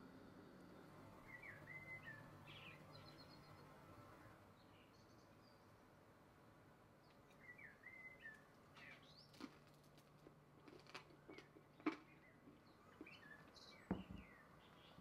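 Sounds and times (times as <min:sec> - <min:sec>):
faint bird chirps: 0:00.8 - 0:03.7, 0:07.3 - 0:09.4.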